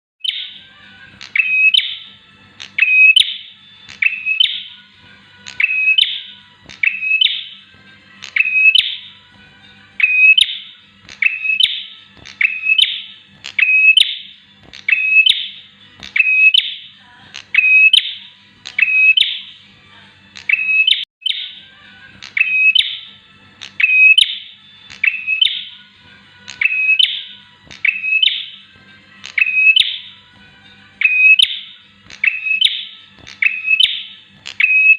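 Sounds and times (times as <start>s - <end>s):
bird sharp chirping call: 31.0s - 34.9s.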